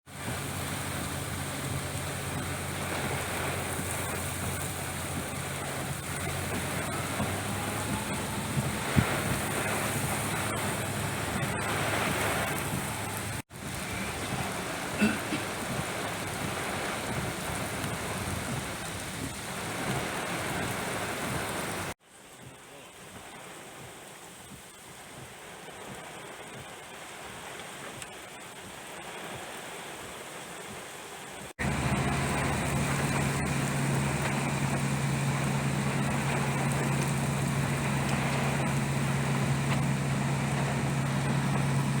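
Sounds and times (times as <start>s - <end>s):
heavy rain hissing: 0.1s - 42.0s
steady low hum: 31.6s - 42.0s.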